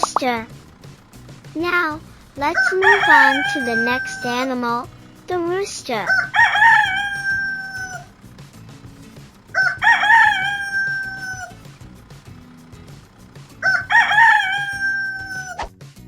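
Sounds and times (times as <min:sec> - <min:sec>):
rooster crowing: 0:02.4 - 0:04.6, 0:06.0 - 0:08.3, 0:09.5 - 0:11.9, 0:13.4 - 0:15.6.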